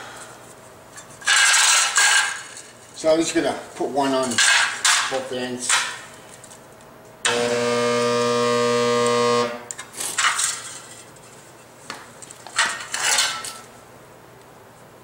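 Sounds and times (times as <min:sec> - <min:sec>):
spot welder buzzing: 0:07.2 - 0:09.8
metallic clatters: 0:12.5 - 0:13.7.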